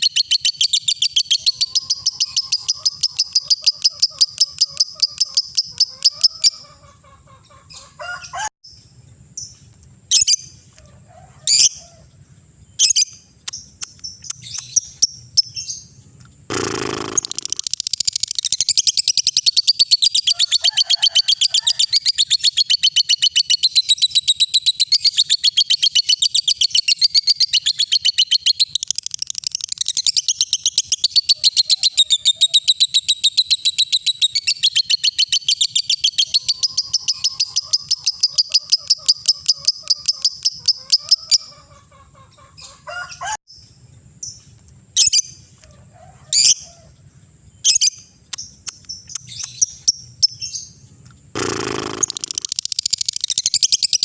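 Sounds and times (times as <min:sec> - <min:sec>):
bird rapid chattering trill: 0:00.0 - 0:07.4, 0:16.5 - 0:21.0, 0:22.0 - 0:42.3, 0:51.3 - 0:54.0
bird chirping: 0:00.0 - 0:08.1, 0:08.7 - 0:10.7, 0:11.5 - 0:20.7, 0:21.8 - 0:42.9, 0:46.4 - 0:54.0
burst of noise: 0:51.4 - 0:52.5.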